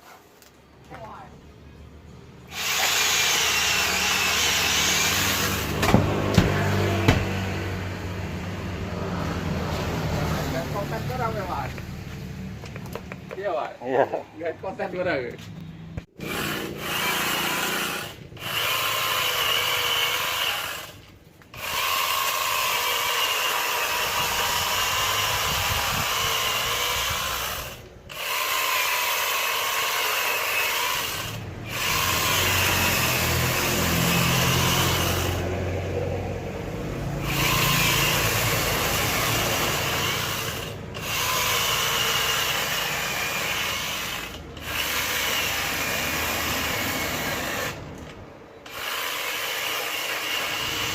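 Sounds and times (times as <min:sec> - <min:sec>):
angle grinder cutting wood: 0:02.4 - 0:11.9, 0:16.0 - 0:50.9.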